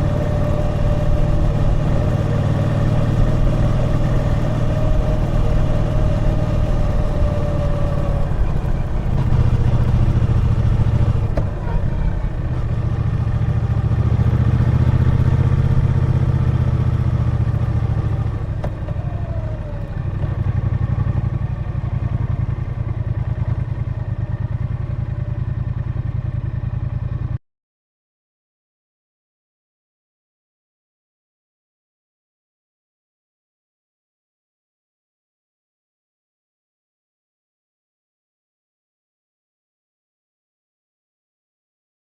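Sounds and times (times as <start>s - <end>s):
motorcycle engine revving: 0.0s - 27.4s.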